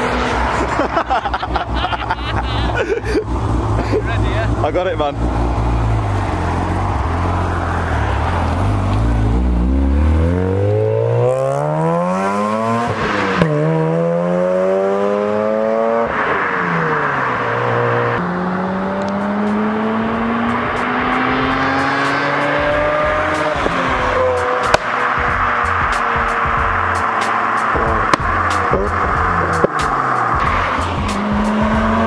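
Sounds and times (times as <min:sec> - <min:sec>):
rotary engine revving: 0:03.2 - 0:32.0.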